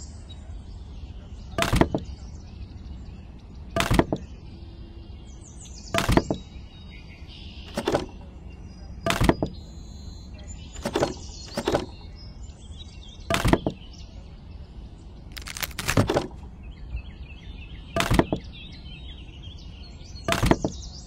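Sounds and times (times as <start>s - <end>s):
wooden sticks clattering: 15.3s - 16.4s.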